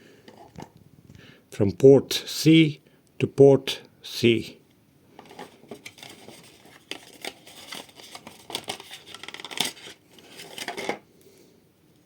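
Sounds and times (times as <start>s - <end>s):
packaging rustling and crinkling: 5.2s - 11.0s.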